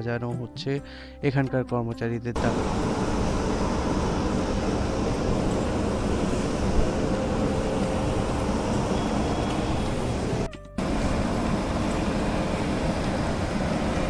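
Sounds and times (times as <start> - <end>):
railway station background noise: 2.4 - 14.0.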